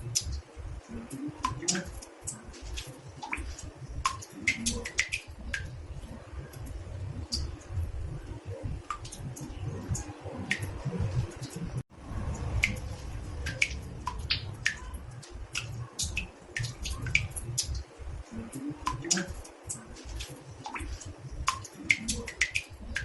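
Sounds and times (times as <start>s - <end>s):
water drops plinking in bathtub: 0.0s - 11.6s, 12.3s - 23.0s
low rumble: 5.4s - 15.6s.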